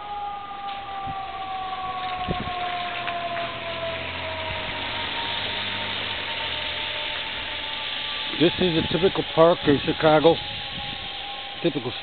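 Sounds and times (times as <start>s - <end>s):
distant two-note siren: 0.0s - 12.0s
steady hiss: 4.0s - 12.0s.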